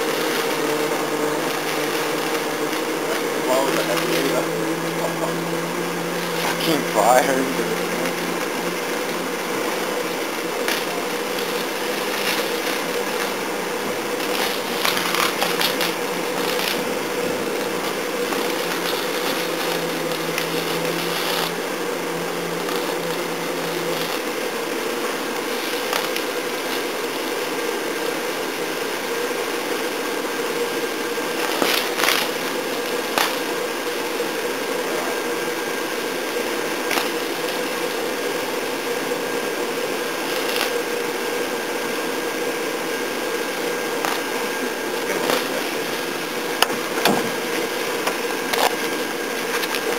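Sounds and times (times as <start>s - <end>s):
blower fan rushing hum: 0.0s - 49.9s
fire crackling clicks: 1.4s - 21.7s, 22.6s - 24.4s, 25.3s - 26.9s, 31.4s - 33.5s, 36.8s - 37.7s, 40.3s - 40.8s, 44.0s - 44.3s, 46.6s - 49.9s.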